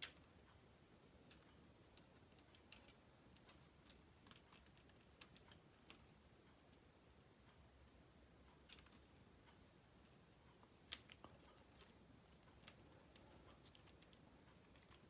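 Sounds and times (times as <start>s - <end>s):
plastic connectors clicking: 1.3s - 6.1s, 10.8s - 15.0s.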